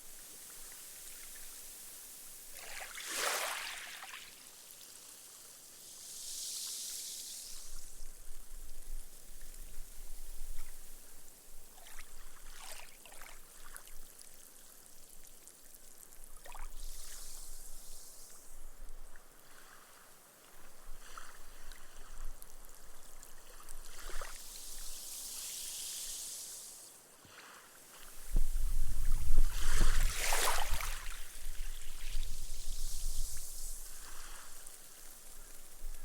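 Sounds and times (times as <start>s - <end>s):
small waves washing on sand: 0.2s - 8.0s, 19.2s - 36.0s.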